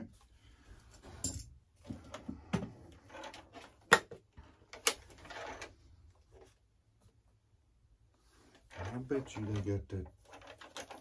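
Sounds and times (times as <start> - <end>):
plastic parts clicking and tapping: 8.8 - 11.0.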